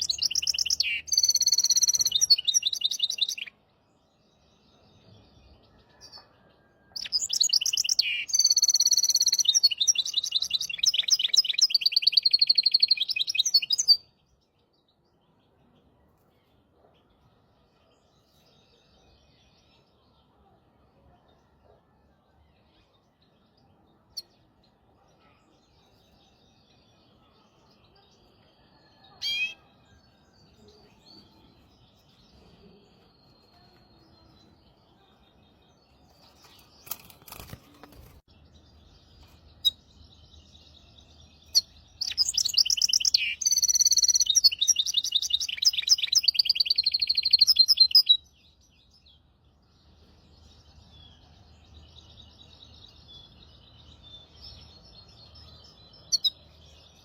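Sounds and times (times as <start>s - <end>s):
finch singing: 0.0s - 3.6s, 7.0s - 14.0s, 25.2s - 49.1s.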